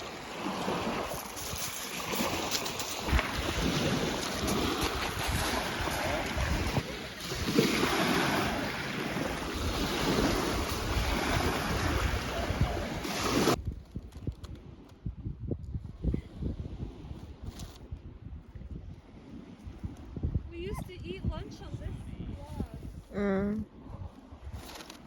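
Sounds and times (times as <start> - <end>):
waves washing onto shore: 0.0 - 13.6
wind rumbling on microphone: 0.0 - 25.0.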